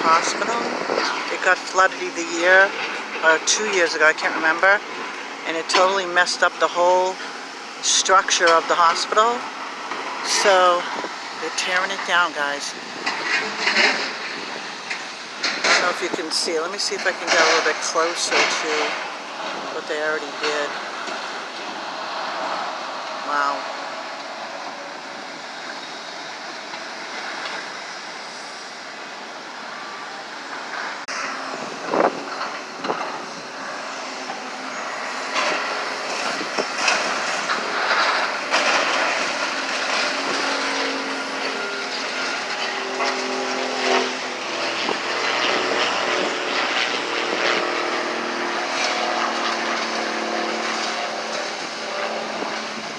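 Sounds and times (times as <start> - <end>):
heavy demolition machinery: 0.0 - 52.9
bangs and crunches of breaking debris: 35.3 - 43.1.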